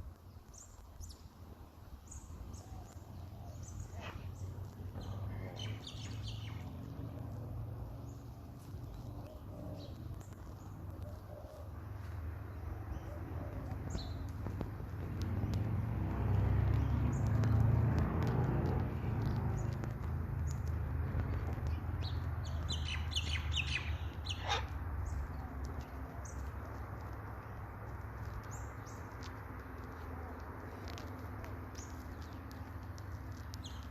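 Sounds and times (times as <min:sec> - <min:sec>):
steady low rumble: 0:00.0 - 0:33.9
bird chirps: 0:02.1 - 0:14.4, 0:21.6 - 0:26.8
high bird calls: 0:21.4 - 0:26.8.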